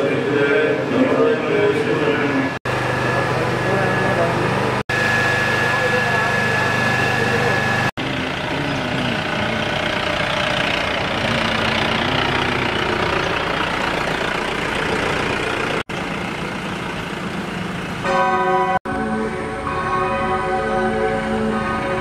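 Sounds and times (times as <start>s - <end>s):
vehicle engine idling: 2.7s - 18.8s.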